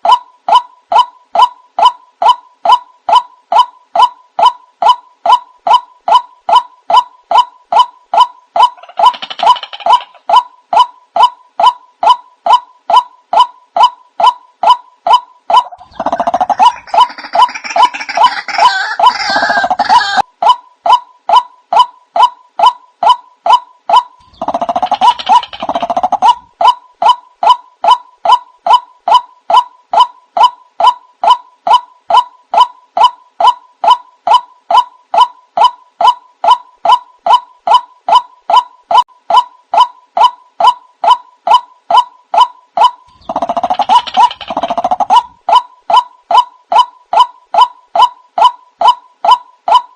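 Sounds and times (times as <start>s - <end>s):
waterhen call: 14.3s - 20.3s.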